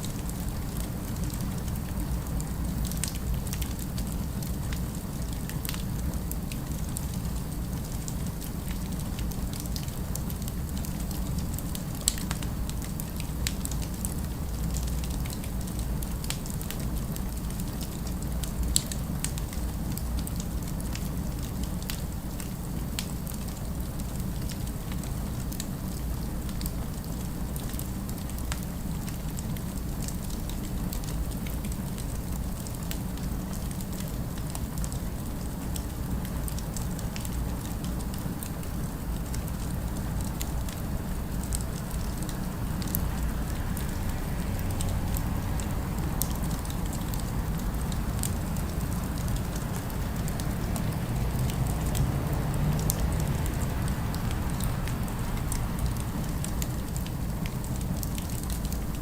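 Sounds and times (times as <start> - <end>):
distant city ambience: 39.1 - 58.6.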